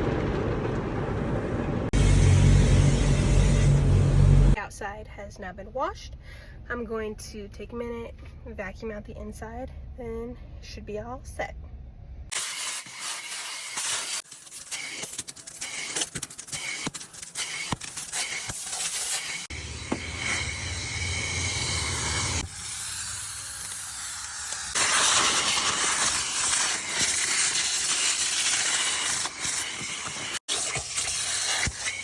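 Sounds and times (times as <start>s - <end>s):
vacuum cleaner running: 19.5s - 22.5s, 24.5s - 32.0s.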